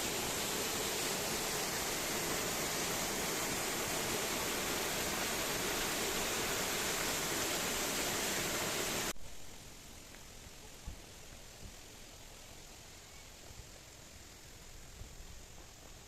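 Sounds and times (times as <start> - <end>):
stream water rushing: 0.0 - 9.2.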